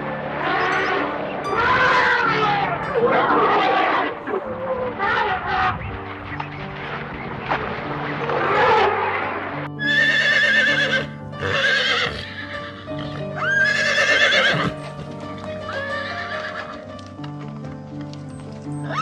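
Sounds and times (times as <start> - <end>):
background music: 0.0 - 19.0
horse whinnying: 9.8 - 15.0, 15.7 - 16.9.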